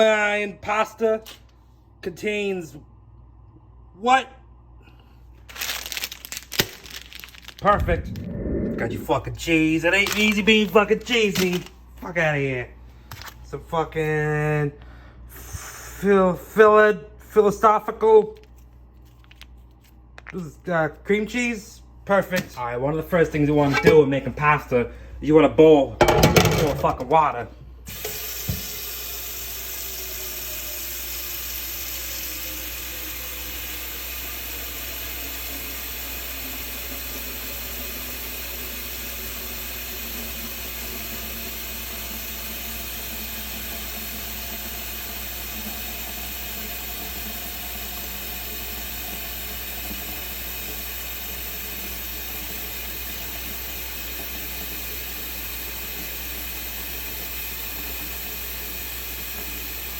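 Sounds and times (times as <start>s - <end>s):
faint tones sliding down in pitch: 7.8s - 9.3s.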